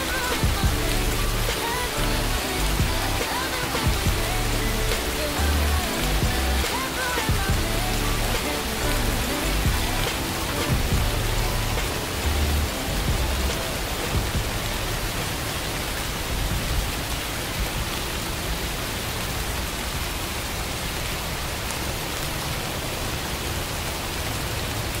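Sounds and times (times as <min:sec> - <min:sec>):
steady rain hiss: 0:00.0 - 0:25.0
low rumble: 0:07.3 - 0:10.1, 0:10.7 - 0:15.2.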